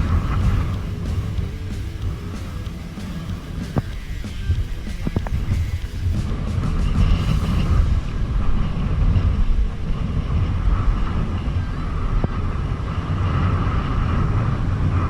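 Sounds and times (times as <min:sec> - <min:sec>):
steady hiss: 0:00.0 - 0:10.1.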